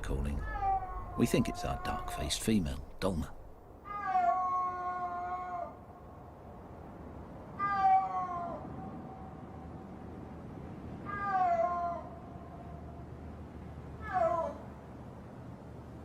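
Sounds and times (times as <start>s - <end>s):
snow leopard yowling: 0.3s - 2.4s.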